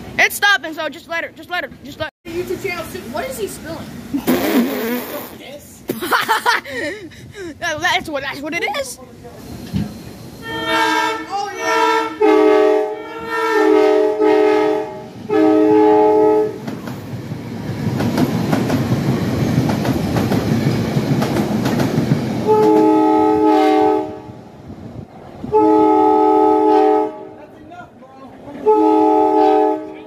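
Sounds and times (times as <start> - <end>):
multi-chime train horn: 10.4 - 16.6, 22.5 - 24.2, 25.6 - 27.3, 28.6 - 30.0
train wheels clattering over rail joints: 16.6 - 22.9.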